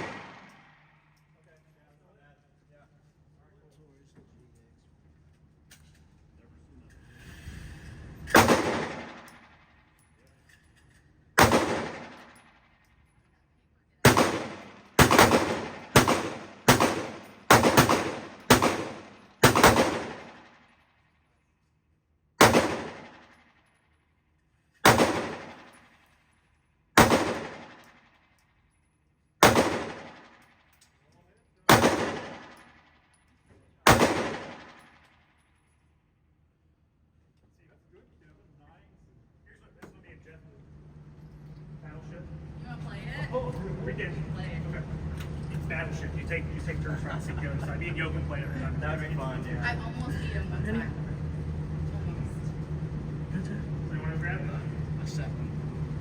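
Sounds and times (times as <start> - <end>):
pistol shots echoing: 0.0 - 0.7, 8.3 - 9.6, 11.4 - 12.5, 14.0 - 20.6, 22.4 - 23.4, 24.8 - 25.8, 27.0 - 28.0, 29.4 - 30.4, 31.7 - 32.8, 33.9 - 35.0.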